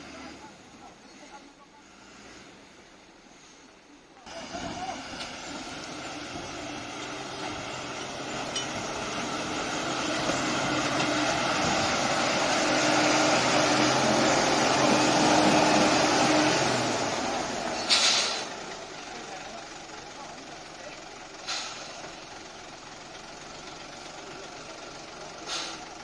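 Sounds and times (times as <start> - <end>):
heavy truck engine running: 4.2 - 26.0
short sharp hiss: 17.8 - 18.6, 21.4 - 22.0, 25.5 - 25.8.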